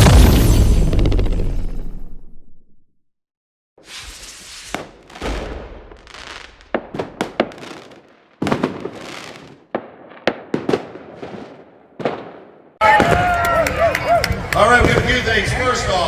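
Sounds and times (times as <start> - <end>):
fireworks bangs and cracks: 3.8 - 16.0.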